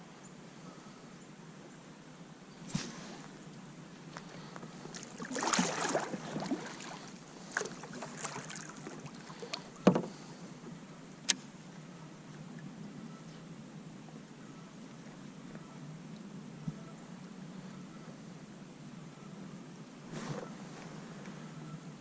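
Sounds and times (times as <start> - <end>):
water splashing and rustling: 2.6 - 10.6
knocks on kayak: 9.9 - 10.1.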